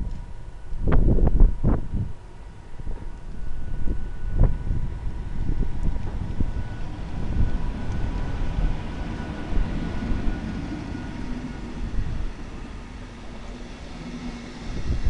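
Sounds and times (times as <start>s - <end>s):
thin steady whine: 0.0s - 15.0s
wheels rumbling on track: 0.0s - 15.0s.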